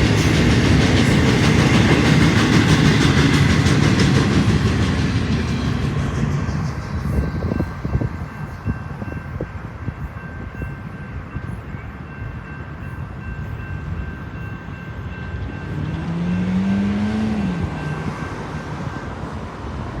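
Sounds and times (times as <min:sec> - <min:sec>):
train wheels clicking over rail joints: 0:00.0 - 0:10.5
train rumble: 0:00.0 - 0:20.0.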